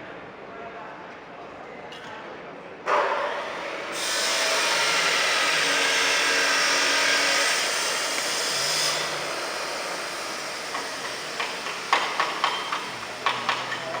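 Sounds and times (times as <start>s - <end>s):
loud steady hiss: 3.6s - 14.0s.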